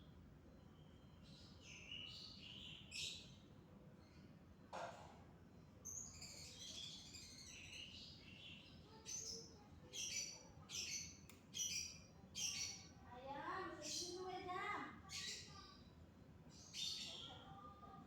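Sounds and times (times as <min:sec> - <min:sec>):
small birds chirping: 0:05.8 - 0:13.0, 0:15.0 - 0:17.7.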